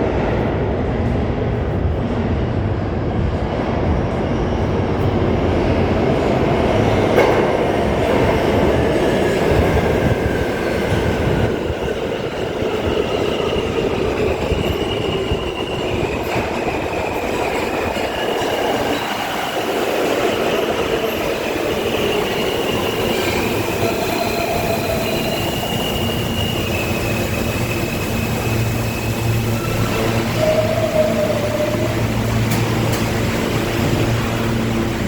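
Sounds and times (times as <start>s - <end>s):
train wheels rumbling on track: 0.0s - 35.0s
high-pitched wheel squeal: 21.7s - 32.2s.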